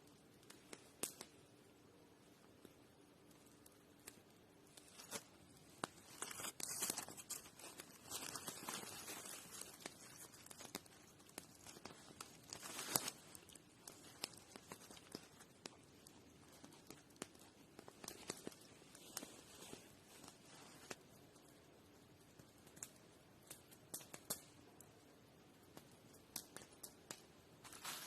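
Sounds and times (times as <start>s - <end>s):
rustling and crunching: 4.7s - 21.1s, 27.6s - 28.0s.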